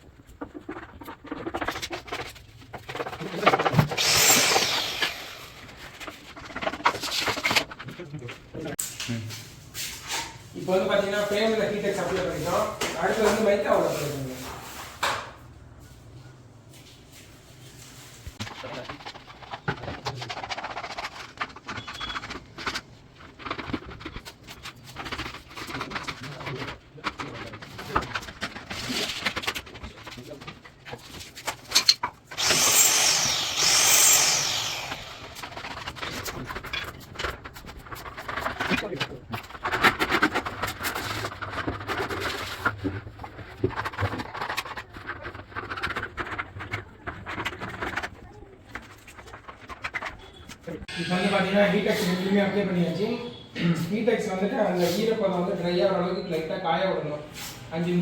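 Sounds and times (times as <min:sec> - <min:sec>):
adhesive scraping strokes: 0:32.3 - 0:36.8, 0:49.0 - 0:53.4.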